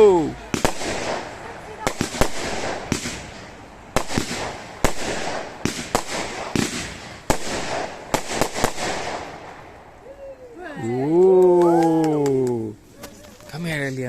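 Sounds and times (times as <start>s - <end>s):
fireworks bangs: 0.0s - 10.1s
fireworks crackling: 0.0s - 14.0s.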